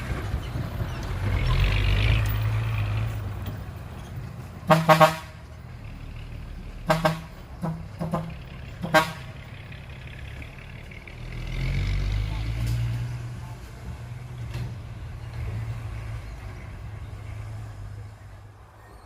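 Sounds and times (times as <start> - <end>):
truck horn short blasts: 4.7 - 5.4, 6.8 - 9.4.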